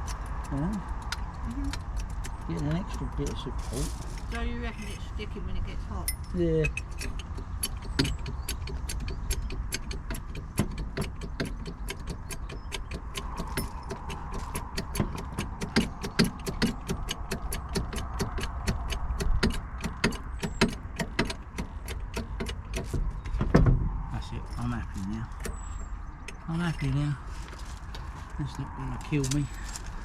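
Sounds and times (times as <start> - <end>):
ratchet clicking: 0.0 - 3.4, 6.6 - 23.0.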